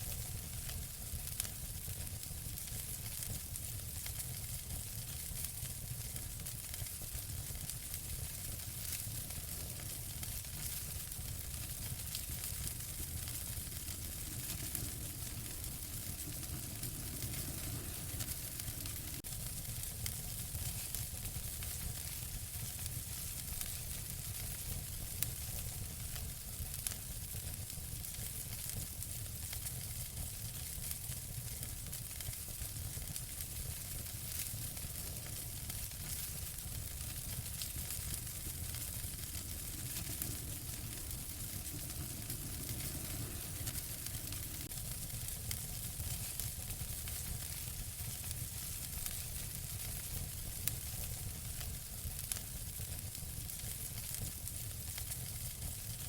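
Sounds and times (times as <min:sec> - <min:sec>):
wood fire crackling: 0:00.0 - 0:56.0
low rumble: 0:11.4 - 0:19.3, 0:36.8 - 0:45.7.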